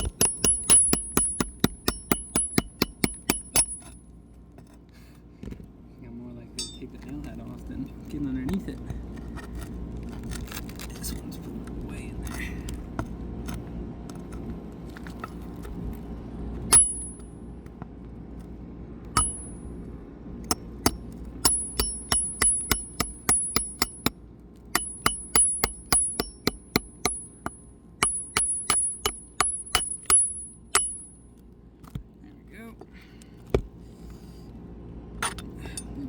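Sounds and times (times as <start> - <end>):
hammer striking steel bar: 0.0 - 3.9, 6.6 - 6.8, 16.7 - 17.2, 19.2 - 19.6, 20.5 - 24.1, 24.8 - 31.2.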